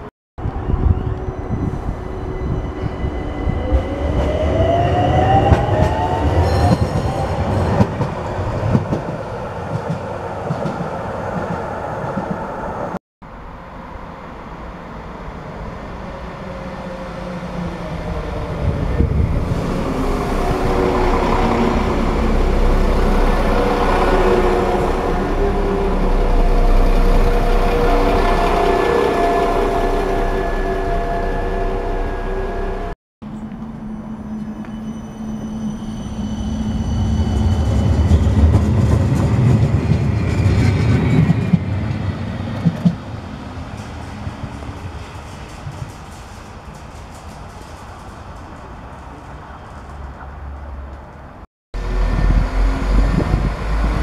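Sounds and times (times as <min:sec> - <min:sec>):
train wheels rumbling on rails: 0:00.4 - 0:13.0, 0:16.5 - 0:33.8, 0:35.4 - 0:54.0
whine rising in pitch: 0:19.8 - 0:32.9.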